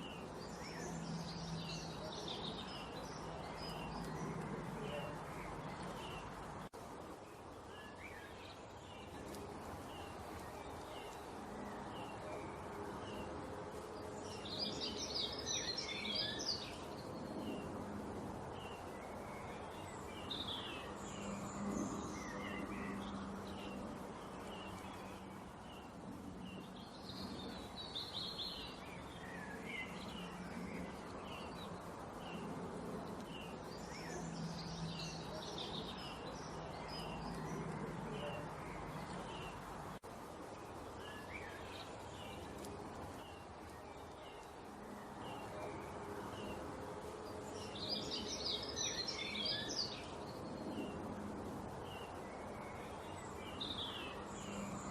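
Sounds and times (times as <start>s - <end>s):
small songbirds chirping: 0.0s - 54.9s.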